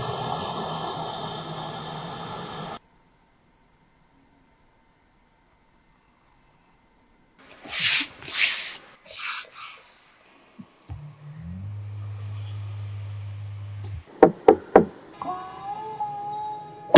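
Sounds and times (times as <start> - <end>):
rubbing or sliding scrapes: 7.5 - 10.0.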